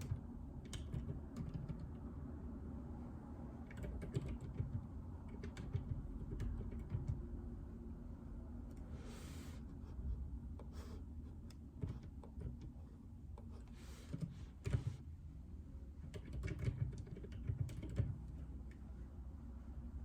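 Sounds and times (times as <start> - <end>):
muffled keyboard typing: 0.0 - 2.2, 3.5 - 7.5, 11.4 - 15.0, 15.9 - 18.8
low steady hum: 0.0 - 20.0.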